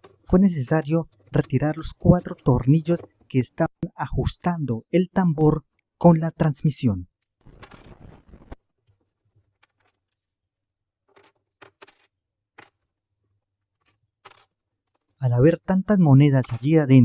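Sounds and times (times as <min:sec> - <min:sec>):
brief rustle: 0:07.4 - 0:10.3.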